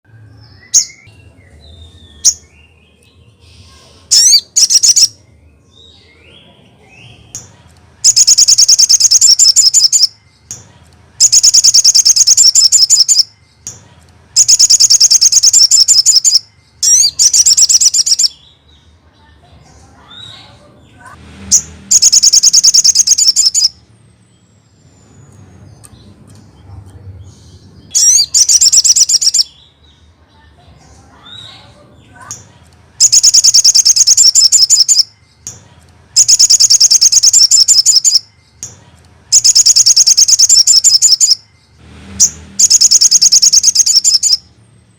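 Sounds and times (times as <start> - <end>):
songbird rapid rattling chirps: 4.1 - 5.2, 7.3 - 18.9, 21.4 - 26.7, 27.6 - 30.1, 32.2 - 44.4.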